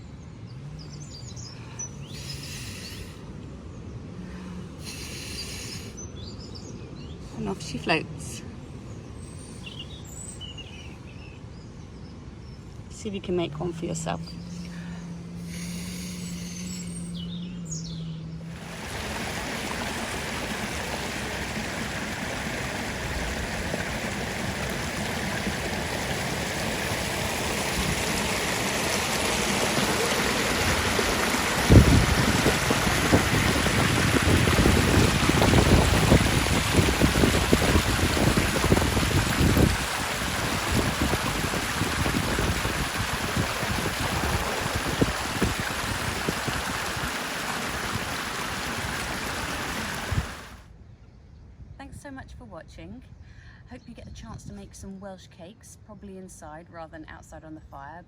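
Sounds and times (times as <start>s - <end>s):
wind buffeting microphone: 18.5s - 50.6s
stream water rushing: 18.5s - 50.7s.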